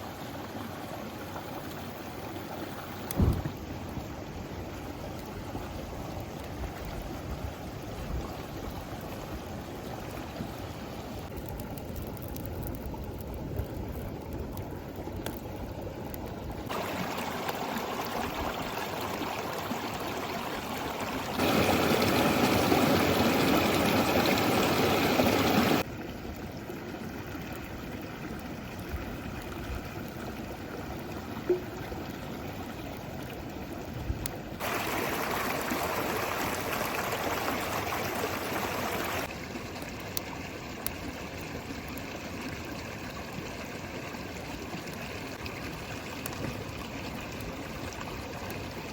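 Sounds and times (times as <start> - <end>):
river water rushing: 16.7 - 25.8, 34.6 - 39.4.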